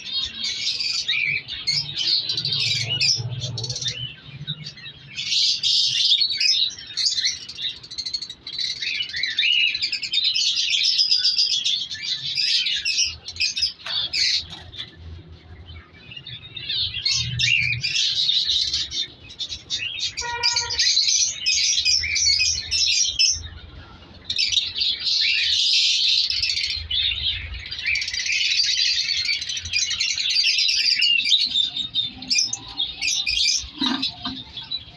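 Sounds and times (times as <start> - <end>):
caged birds chirping: 0.0 - 34.9.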